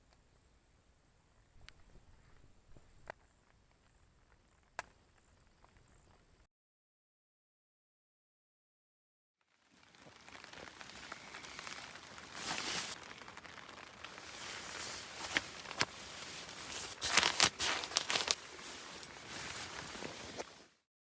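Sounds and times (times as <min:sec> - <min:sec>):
crackles: 0:00.0 - 0:06.5, 0:09.6 - 0:20.8
material rustling and crinkling: 0:09.7 - 0:20.8.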